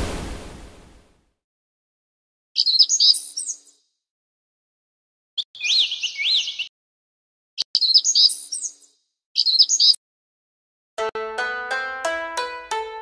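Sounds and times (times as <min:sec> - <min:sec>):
bird whistling and chirping: 0:02.6 - 0:03.8, 0:05.4 - 0:06.7, 0:07.6 - 0:10.0.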